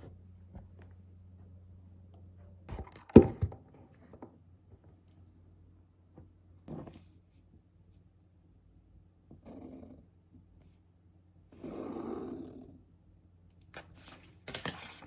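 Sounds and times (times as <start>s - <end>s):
low steady hum: 0.0s - 11.6s
knocks and thumps of handling: 2.7s - 4.9s.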